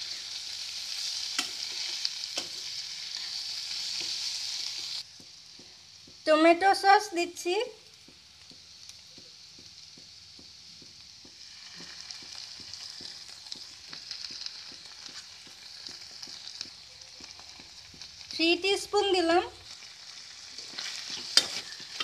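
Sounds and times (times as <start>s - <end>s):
vegetables sizzling in a wok: 0.0s - 22.0s
small crackles: 7.8s - 18.4s, 19.0s - 22.0s.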